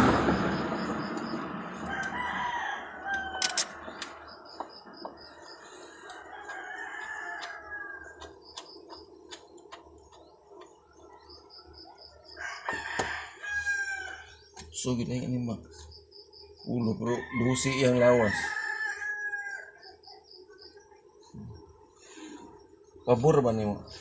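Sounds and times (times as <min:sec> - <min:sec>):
rooster crowing: 0:00.1 - 0:08.7, 0:12.0 - 0:14.5, 0:16.8 - 0:20.0.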